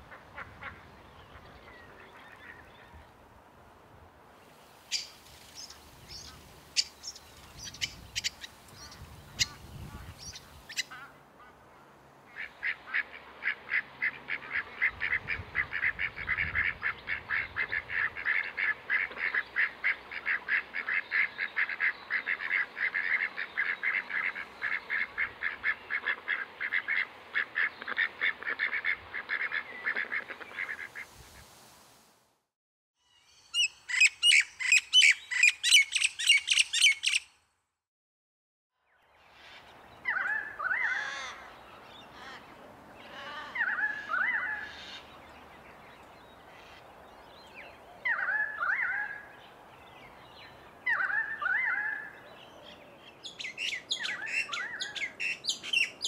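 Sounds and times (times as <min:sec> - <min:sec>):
birds chirping: 0:04.4 - 0:13.0, 0:33.1 - 0:37.4, 0:39.0 - 0:56.0.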